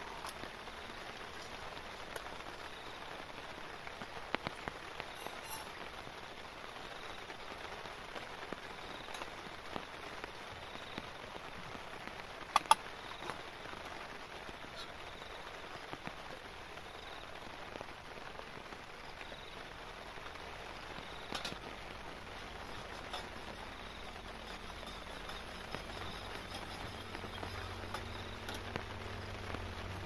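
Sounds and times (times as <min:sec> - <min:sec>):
rain falling on a tarp: 0:00.0 - 0:30.0
sharp clicks: 0:12.5 - 0:12.8.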